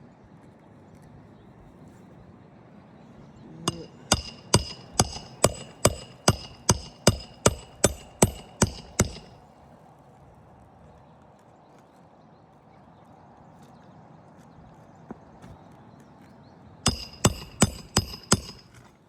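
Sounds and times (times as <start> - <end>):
hammer striking roofing nail: 3.7 - 9.4, 16.9 - 18.8.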